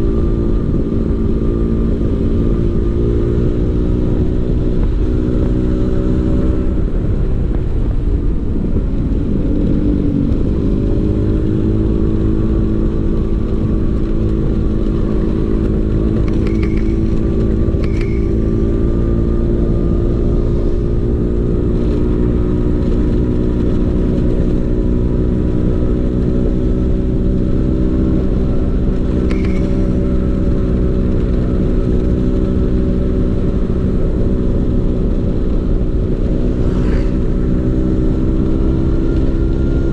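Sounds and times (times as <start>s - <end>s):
scooter engine running: 10.0s - 39.9s.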